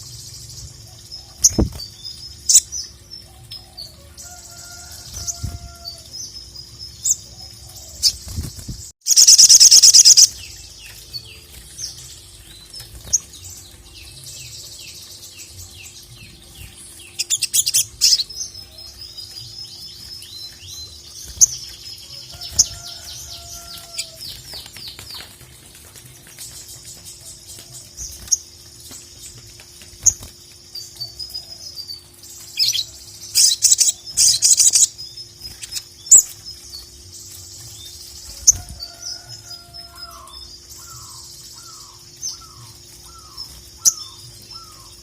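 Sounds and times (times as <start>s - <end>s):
loud dense bird trill: 0.0s - 25.3s, 30.0s - 45.0s
bird singing high chirps: 8.0s - 15.2s.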